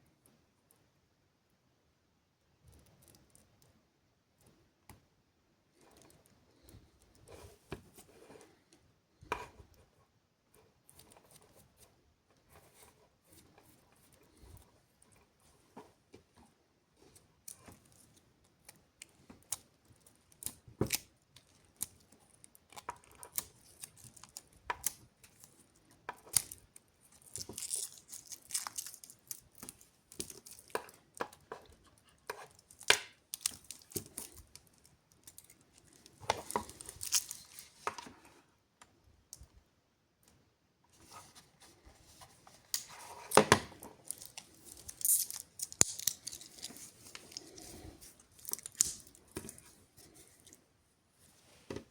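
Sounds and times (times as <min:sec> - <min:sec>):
packaging rustling and tearing: 0:26.4 - 0:30.8, 0:32.5 - 0:37.8, 0:44.0 - 0:49.7.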